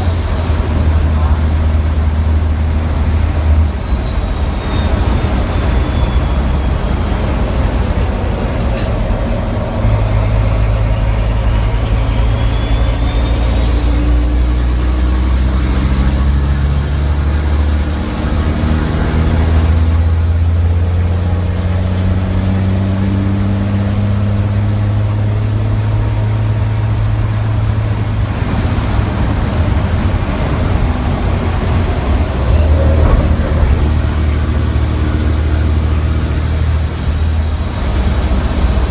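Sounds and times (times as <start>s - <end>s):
turbo whistle: 0.0s - 8.9s, 10.1s - 20.7s, 25.5s - 38.9s
diesel truck engine under load: 0.0s - 38.9s.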